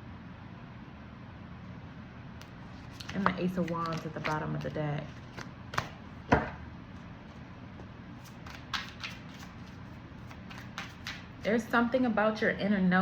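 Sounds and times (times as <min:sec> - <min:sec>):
cards snapping and tapping: 0:02.9 - 0:06.4, 0:08.3 - 0:11.3.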